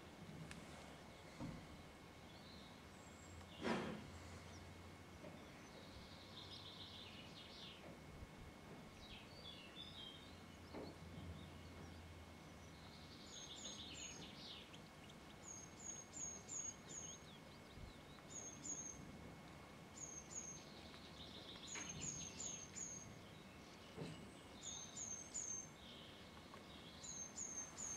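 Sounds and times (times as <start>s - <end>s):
low outdoor hiss: 0.0s - 27.9s
faint high bird calls: 19.9s - 27.9s.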